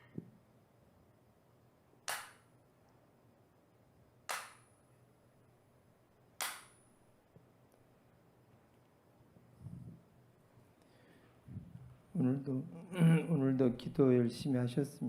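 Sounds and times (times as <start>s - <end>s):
bamboo clapper claps: 2.1s - 2.5s, 4.3s - 4.7s, 6.4s - 6.8s.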